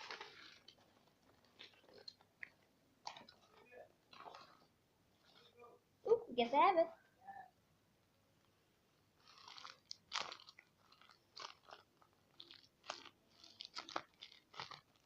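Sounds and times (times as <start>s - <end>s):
paper and tape crinkling: 0.0s - 2.5s, 9.2s - 15.0s.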